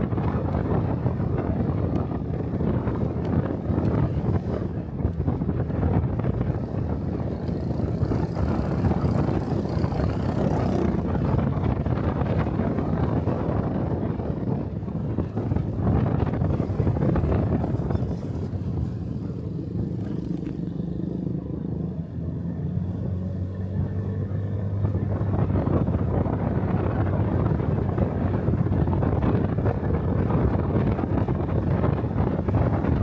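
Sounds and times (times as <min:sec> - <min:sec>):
wind buffeting microphone: 0:00.0 - 0:33.0
motorcycle engine running: 0:04.8 - 0:21.8.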